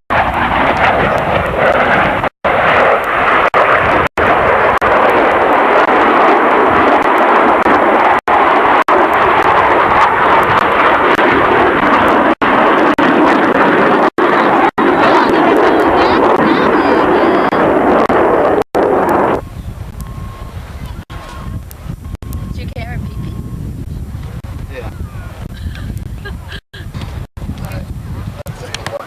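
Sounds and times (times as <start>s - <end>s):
jet engine roaring: 0.1s - 29.0s.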